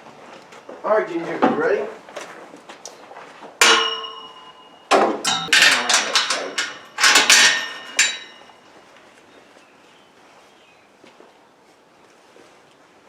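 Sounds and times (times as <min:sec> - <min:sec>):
metal gate clanking and rattling: 0:03.6 - 0:08.6.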